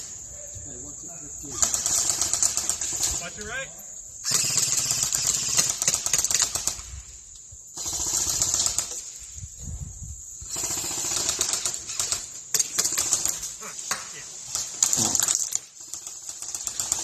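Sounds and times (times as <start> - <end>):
airsoft gun rapid clicking shots: 1.6 - 3.2, 4.2 - 6.9, 7.8 - 9.0, 10.5 - 17.0.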